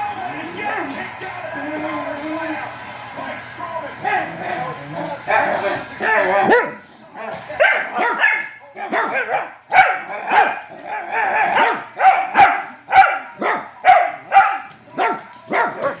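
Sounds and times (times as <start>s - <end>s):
dog barking: 5.3s - 6.8s, 7.6s - 16.0s.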